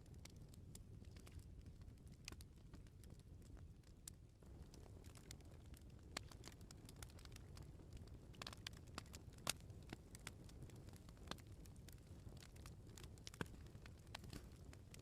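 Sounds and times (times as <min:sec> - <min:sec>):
firewood crackling and popping: 0:00.0 - 0:15.0
low rumble of flames: 0:00.0 - 0:15.0.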